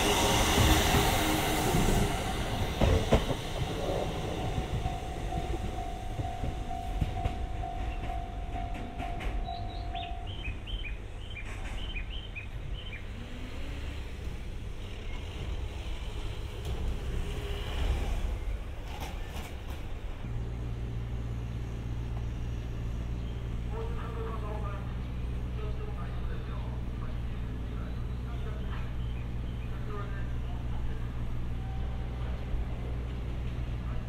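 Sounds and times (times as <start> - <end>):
train wheels clacking on rails: 0.0 - 12.9, 15.0 - 20.2.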